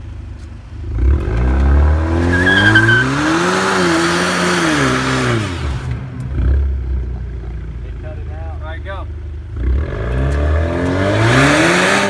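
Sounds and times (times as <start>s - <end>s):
car engine revving: 0.8s - 7.1s, 9.6s - 12.0s
tyre squealing: 2.0s - 5.6s.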